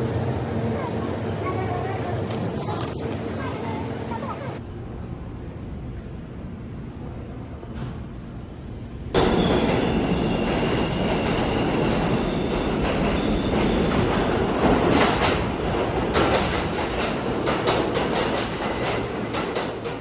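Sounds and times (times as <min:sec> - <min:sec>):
train car rumbling on rails: 0:00.0 - 0:20.0
clacks over rail joints: 0:12.0 - 0:20.0.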